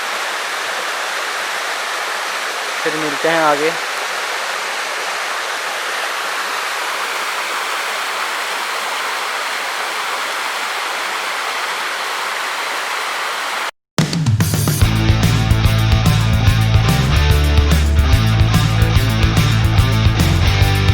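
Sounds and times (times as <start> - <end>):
waterfall rushing: 0.0 - 13.7
rock music: 14.0 - 20.9.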